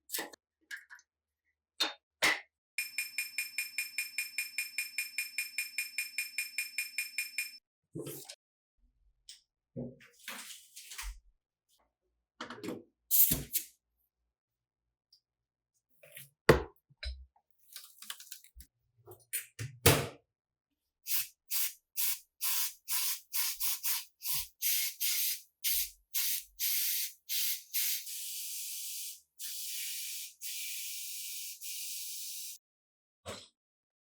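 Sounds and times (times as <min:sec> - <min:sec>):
spray hissing: 0:21.1 - 0:32.3.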